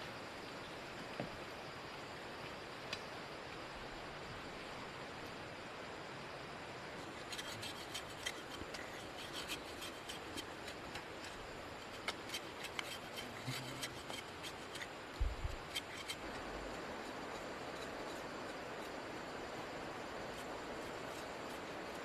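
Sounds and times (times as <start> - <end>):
steady background hiss: 0.0 - 22.0
plant material rubbing and crackling: 7.0 - 19.0.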